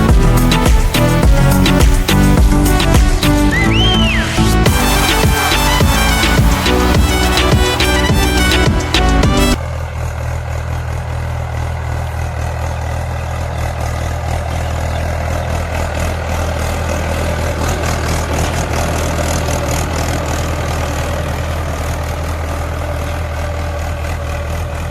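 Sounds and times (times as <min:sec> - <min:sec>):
tractor diesel engine running: 0:00.0 - 0:24.9.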